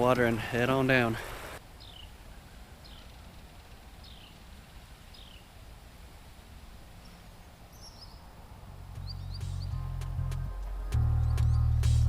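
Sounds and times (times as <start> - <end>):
bird chirping: 1.7 - 5.6, 7.0 - 12.0.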